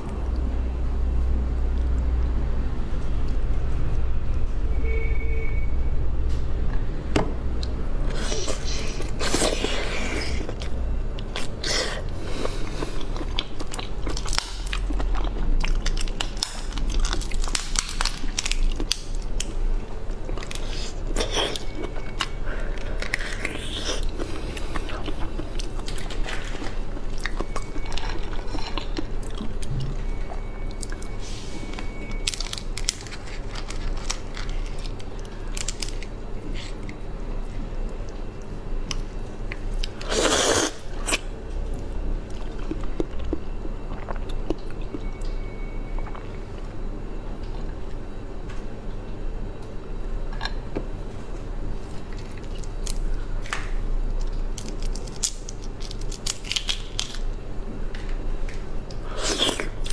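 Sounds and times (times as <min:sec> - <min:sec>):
biting and chewing shrimp: 0:07.6 - 0:19.5, 0:20.1 - 0:31.2, 0:51.9 - 0:59.9.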